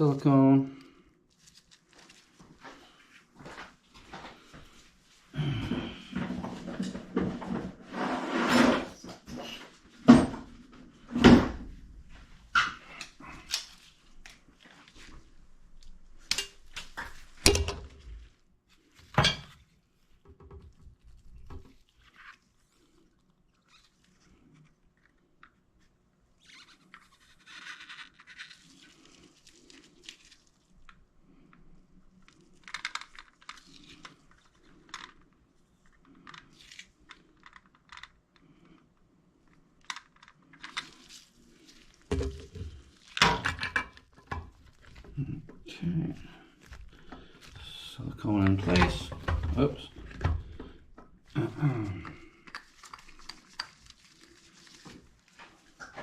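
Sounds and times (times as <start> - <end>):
sink parts knocking and clattering: 10.0 - 10.5, 16.3 - 18.1, 19.1 - 19.6, 42.1 - 45.6, 48.4 - 51.1.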